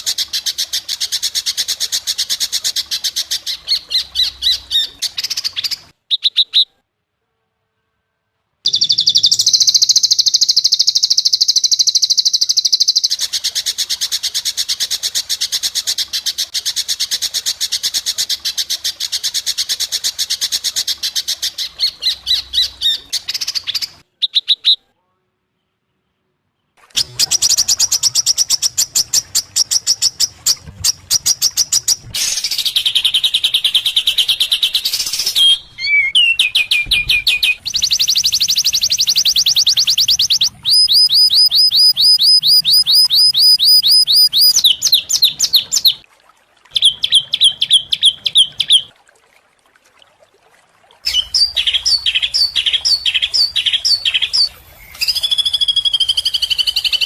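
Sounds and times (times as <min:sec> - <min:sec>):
songbird chirps and trills: 0:08.7 - 0:13.6, 0:20.2 - 0:24.8, 0:25.5 - 0:46.0, 0:46.8 - 0:48.9, 0:51.1 - 0:57.0.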